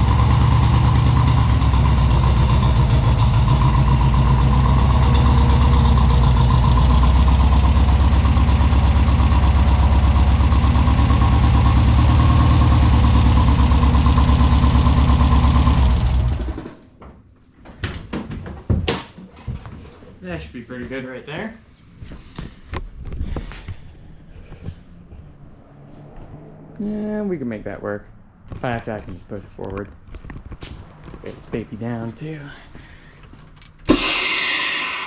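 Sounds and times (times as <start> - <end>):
car engine running: 0.0 - 16.8.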